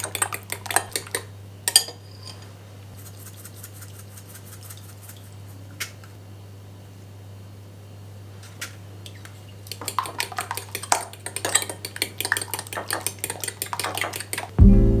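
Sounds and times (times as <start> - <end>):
cutlery clinking against dishes: 0.0 - 2.5, 9.7 - 14.6
low steady hum: 14.6 - 15.0.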